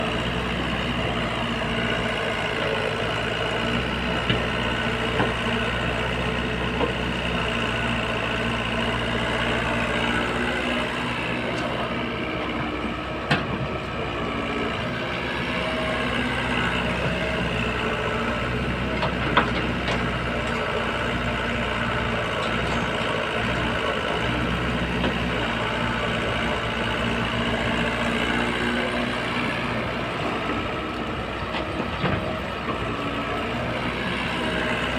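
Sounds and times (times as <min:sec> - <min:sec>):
heavy machine engine running: 0:00.0 - 0:34.9.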